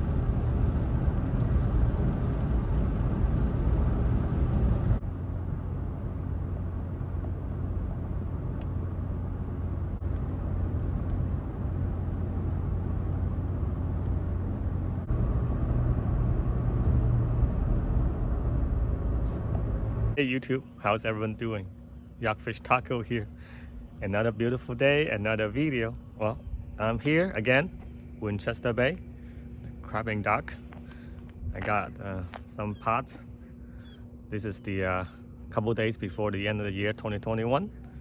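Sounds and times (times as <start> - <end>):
vehicle rumbling on road: 0.0 - 20.2.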